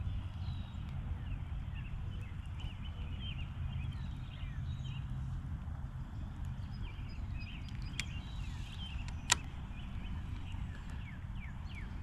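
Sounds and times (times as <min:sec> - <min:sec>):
birds chirping: 0:00.0 - 0:12.0
steady low rumble: 0:00.0 - 0:12.0
sharp loud click: 0:09.1 - 0:09.5.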